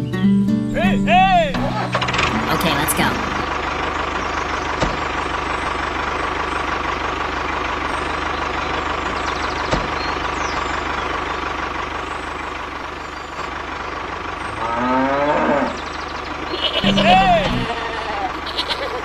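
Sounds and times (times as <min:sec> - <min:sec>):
cow mooing: 0:14.5 - 0:15.8, 0:16.5 - 0:18.8.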